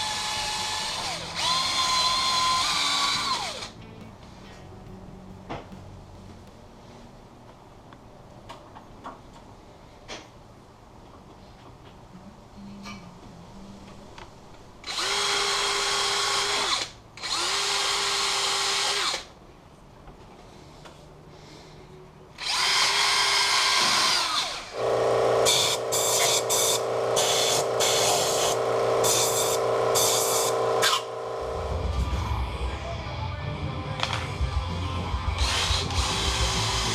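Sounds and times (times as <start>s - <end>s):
power drill running: 0.0s - 4.6s, 14.8s - 19.3s, 22.4s - 31.9s, 35.3s - 36.9s.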